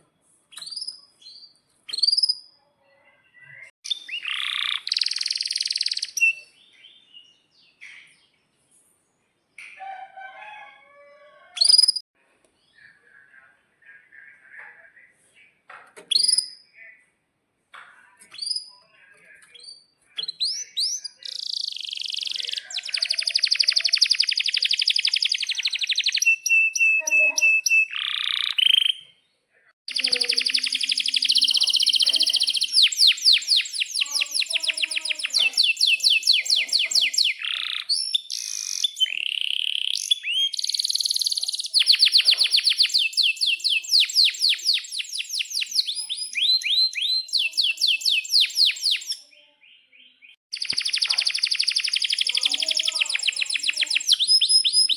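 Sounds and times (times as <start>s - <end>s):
canary singing trills: 0.5s - 8.4s, 9.6s - 12.0s, 16.1s - 16.8s, 18.1s - 29.2s, 29.9s - 54.9s.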